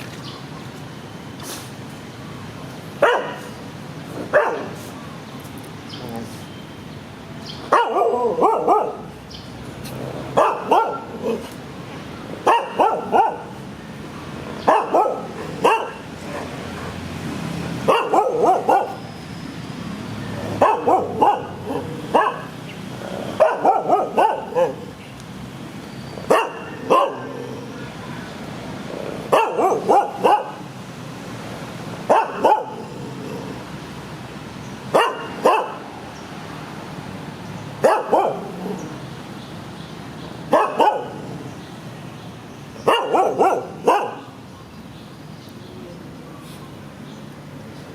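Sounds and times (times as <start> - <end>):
dog barking: 3.0 - 3.6, 4.3 - 4.8, 7.7 - 9.2, 10.3 - 11.4, 12.4 - 13.6, 14.6 - 17.0, 17.8 - 19.1, 20.5 - 22.6, 23.3 - 24.9, 26.3 - 27.4, 29.2 - 30.7, 32.1 - 32.9, 34.9 - 35.9, 37.8 - 38.6, 40.5 - 41.2, 42.8 - 44.4.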